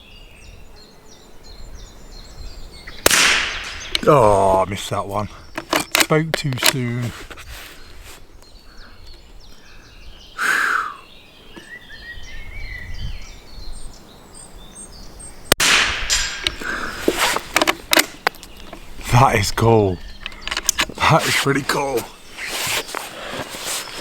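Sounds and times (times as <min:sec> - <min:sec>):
birds chirping faintly: 0:00.0 - 0:24.0
rifle shot: 0:03.0 - 0:04.0, 0:15.6 - 0:16.7.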